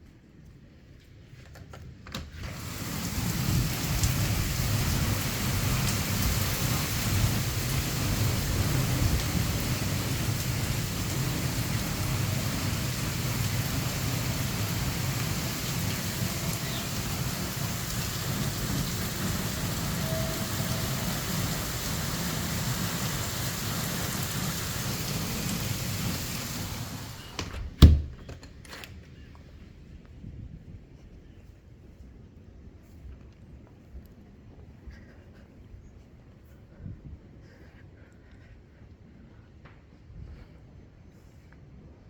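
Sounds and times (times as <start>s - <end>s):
heavy rain hissing: 2.4s - 27.6s
low thunder rumble: 2.7s - 27.4s.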